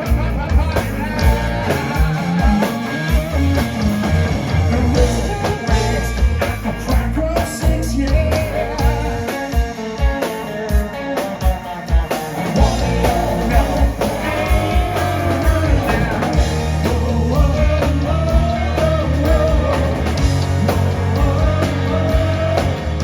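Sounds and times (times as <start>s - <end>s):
bass guitar: 0.0s - 23.0s
drums: 0.0s - 23.0s
electric guitar: 0.0s - 23.0s
sung melody: 0.0s - 23.0s.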